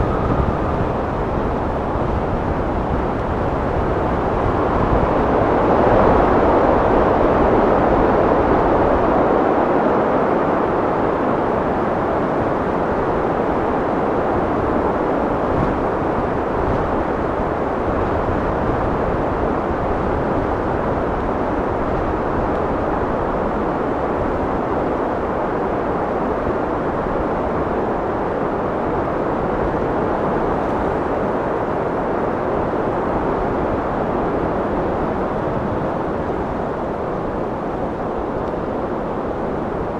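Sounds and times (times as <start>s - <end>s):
wind blowing: 0.0s - 9.3s, 10.5s - 28.3s.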